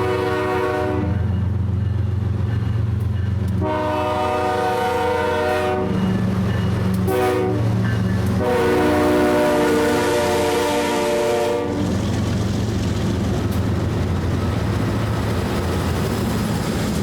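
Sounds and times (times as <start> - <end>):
locomotive air horn blasts: 0.0 - 1.3, 3.6 - 6.0, 7.0 - 11.8
low rumble of train: 0.0 - 17.0.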